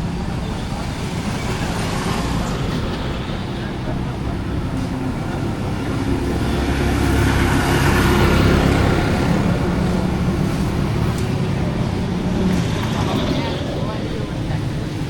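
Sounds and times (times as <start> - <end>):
street traffic noise: 0.0 - 15.0
vehicle engine passing by: 4.0 - 14.3.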